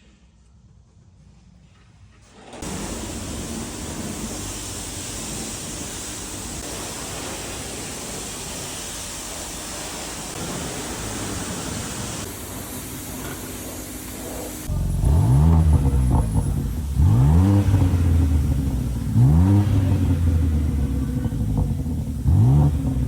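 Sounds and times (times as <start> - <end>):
low engine hum: 10.3 - 23.0.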